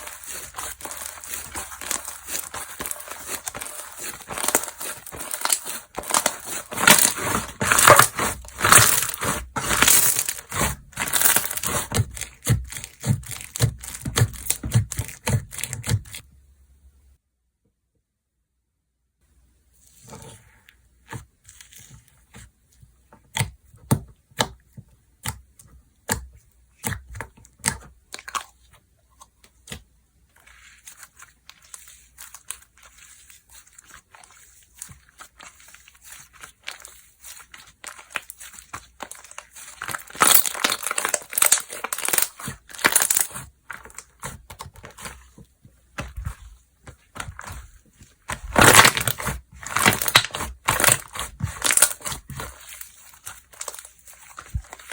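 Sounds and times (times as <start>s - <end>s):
slime squeezed by hand: 0.0s - 16.2s.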